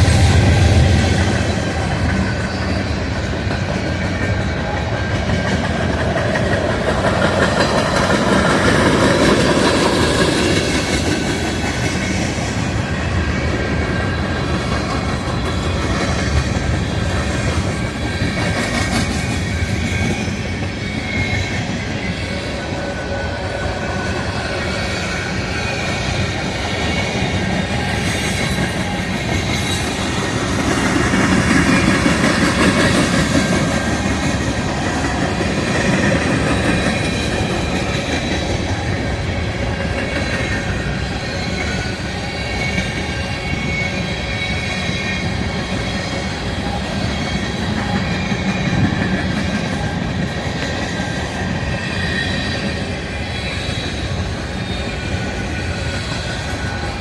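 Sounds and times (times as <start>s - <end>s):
train wheels clattering: 0.0s - 57.0s
high-pitched wheel squeals: 14.0s - 57.0s.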